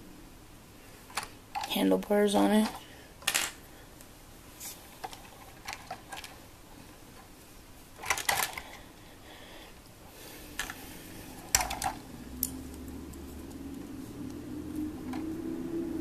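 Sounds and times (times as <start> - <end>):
low steady hum: 0.0 - 16.0
plastic toy bricks clicking: 8.0 - 8.6.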